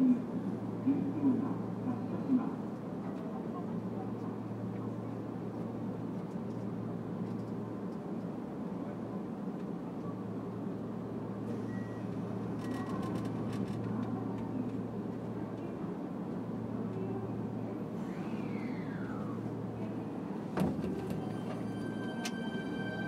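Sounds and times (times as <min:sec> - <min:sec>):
electric train hum and rumble: 0:00.0 - 0:23.0.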